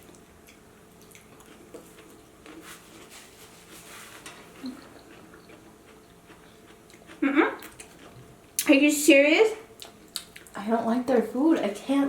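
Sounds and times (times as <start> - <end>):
soft chewing: 0.0 - 8.7, 9.7 - 10.6
wet mouth clicks: 9.8 - 10.6.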